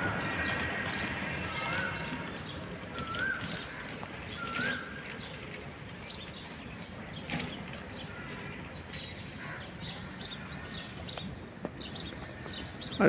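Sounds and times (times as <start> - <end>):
birds chirping: 0.0 - 13.0
outdoor background noise: 0.0 - 13.0
whistled bird call: 4.4 - 5.2.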